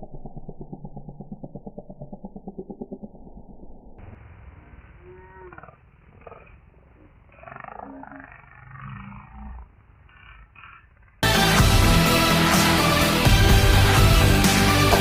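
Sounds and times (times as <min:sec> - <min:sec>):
muffled roaring and growling: 0:05.0 - 0:11.2.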